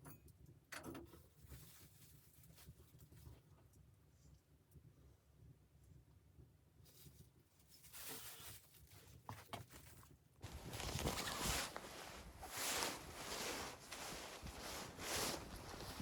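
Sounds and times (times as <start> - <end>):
faint rustling: 6.9 - 16.0
footsteps crunching in snow: 10.4 - 16.0.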